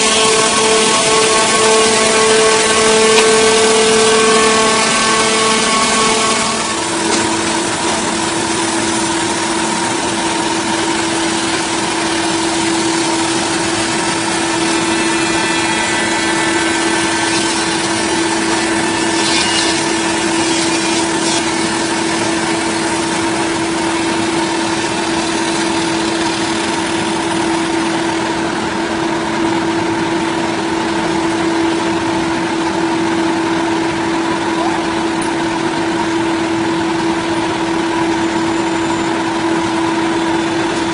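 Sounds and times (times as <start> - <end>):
power saw running: 0.0 - 40.9.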